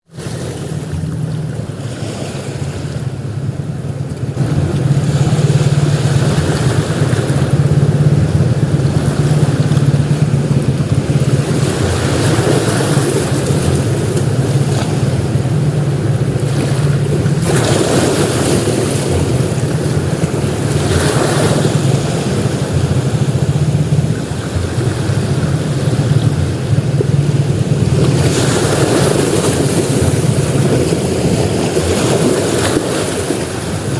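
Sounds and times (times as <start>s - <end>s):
sea waves breaking on beach: 0.0s - 33.9s.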